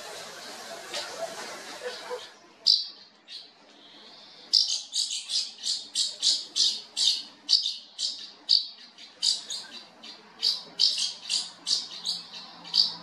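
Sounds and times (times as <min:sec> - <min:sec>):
bird squawking: 0:04.5 - 0:13.0.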